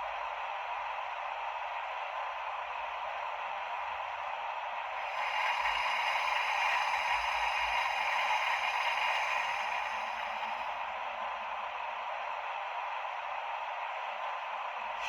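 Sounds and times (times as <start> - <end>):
model locomotive rushing sound: 5.0 - 11.0.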